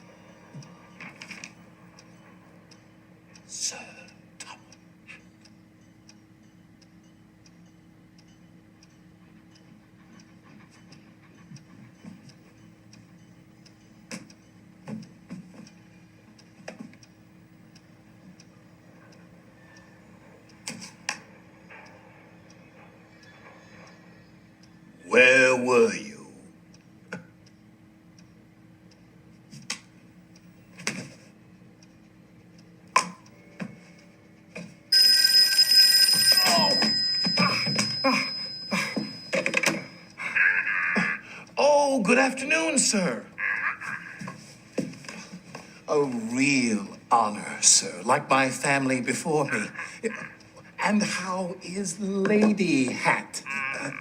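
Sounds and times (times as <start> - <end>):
clock ticking: 0.0 - 24.0, 24.6 - 54.0
telephone bell ringing: 34.9 - 40.2.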